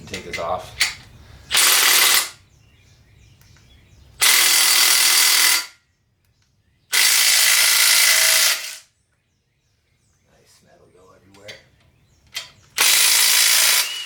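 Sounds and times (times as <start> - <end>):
power tool spinning bolts: 1.5 - 2.4, 4.2 - 5.8, 6.9 - 8.9, 12.4 - 14.0.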